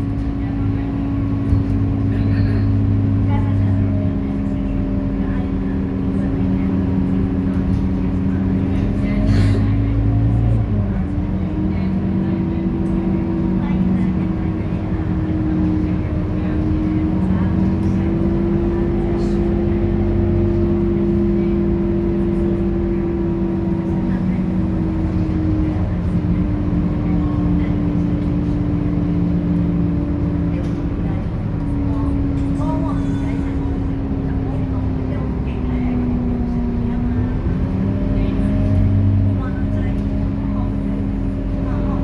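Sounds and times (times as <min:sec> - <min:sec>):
bus diesel engine running: 0:00.0 - 0:42.0.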